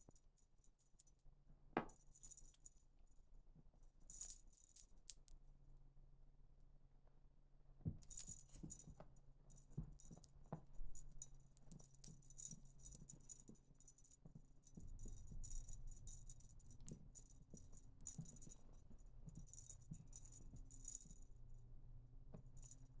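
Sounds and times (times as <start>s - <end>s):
cat toy rattling and jingling: 9.6s - 21.3s.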